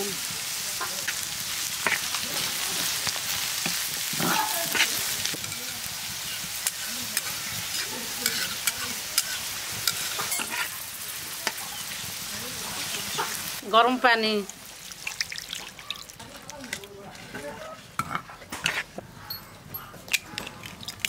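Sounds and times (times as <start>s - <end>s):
vegetables sizzling in oil: 0.0s - 17.4s
metal spatula scraping a pan: 1.8s - 10.8s, 16.3s - 19.0s.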